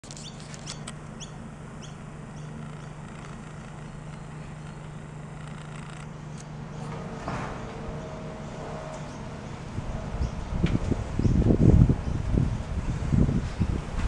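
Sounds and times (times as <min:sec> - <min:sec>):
steady low hum: 0:00.0 - 0:14.0
bird chirping: 0:00.1 - 0:06.9.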